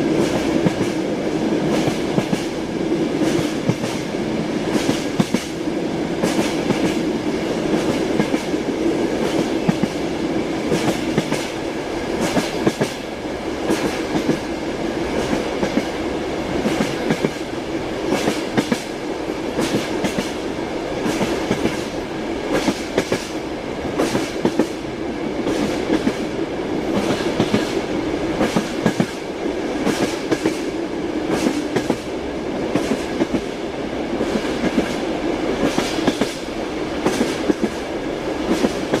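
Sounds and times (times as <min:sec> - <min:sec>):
train rumbling hum: 0:00.0 - 0:39.0.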